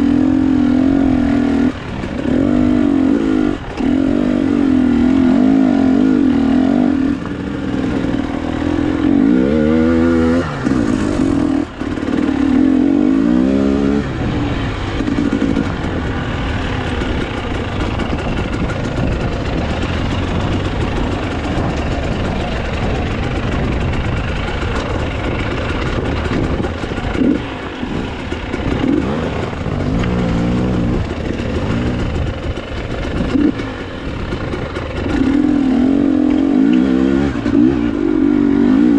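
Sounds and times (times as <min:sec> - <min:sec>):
motorcycle engine revving: 0:00.0 - 0:38.9
steady rushing noise: 0:00.0 - 0:38.9.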